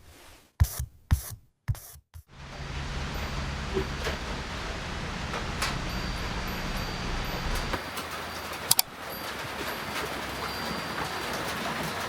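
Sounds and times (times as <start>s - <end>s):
low rumble: 2.3s - 7.8s
rain hissing: 2.3s - 12.0s.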